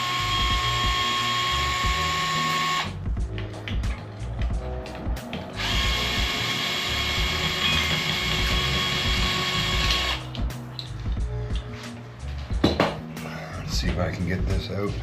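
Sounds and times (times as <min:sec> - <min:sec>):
power drill whining: 0:00.0 - 0:03.0, 0:05.6 - 0:10.2.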